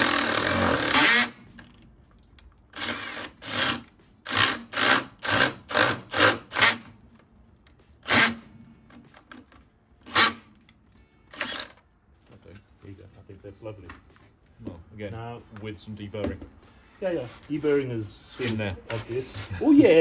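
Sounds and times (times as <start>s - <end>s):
power drill boring through metal: 0.0s - 1.4s, 2.8s - 6.9s, 8.0s - 8.4s, 10.1s - 10.4s, 11.3s - 11.8s.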